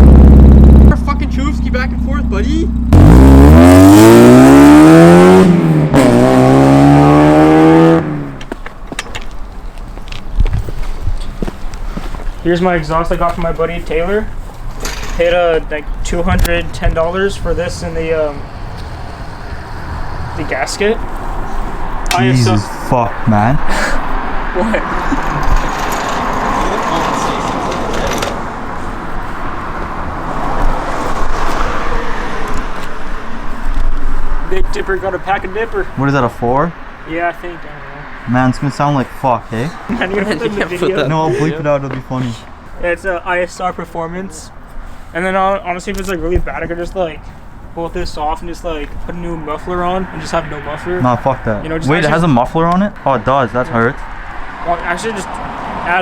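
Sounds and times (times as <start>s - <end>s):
car engine accelerating hard: 0.0s - 8.5s, 17.5s - 21.4s
car engine droning: 0.0s - 8.8s, 15.7s - 41.3s.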